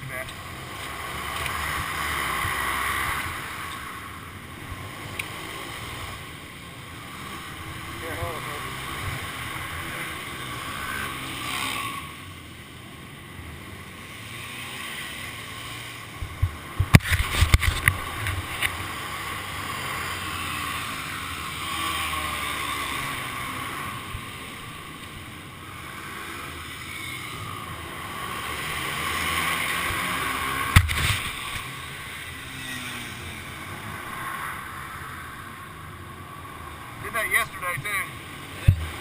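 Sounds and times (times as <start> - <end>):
motorcycle engine running: 0.0 - 39.0
sharp knocks and clatter: 30.7 - 31.6.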